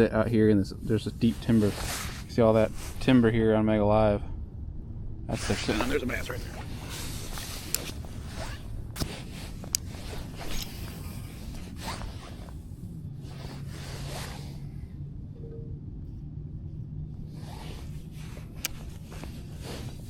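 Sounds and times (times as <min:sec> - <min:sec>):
low steady hum: 0:00.0 - 0:20.0
short swishing rustles: 0:00.9 - 0:03.2, 0:05.4 - 0:14.8, 0:17.3 - 0:20.0.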